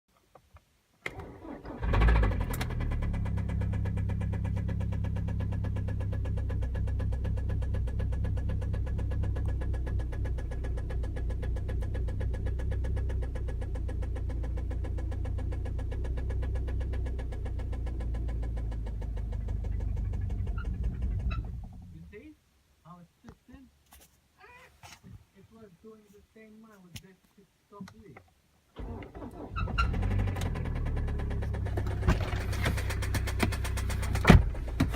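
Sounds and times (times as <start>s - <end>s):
car engine starting and idling: 1.0s - 22.2s, 28.7s - 34.9s.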